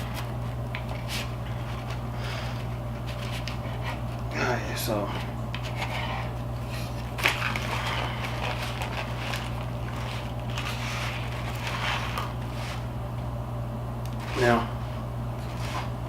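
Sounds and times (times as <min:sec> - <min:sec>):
crispy food crunching: 0:07.0 - 0:12.8.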